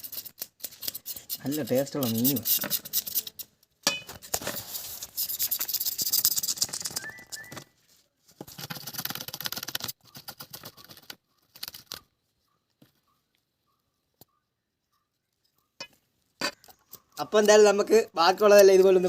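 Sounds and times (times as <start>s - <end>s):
knife scraping fish scales: 0.0s - 3.5s.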